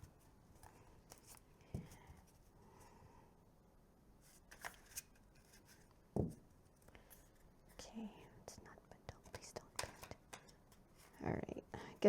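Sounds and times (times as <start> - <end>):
cards being shuffled: 4.3 - 5.9, 9.4 - 11.1.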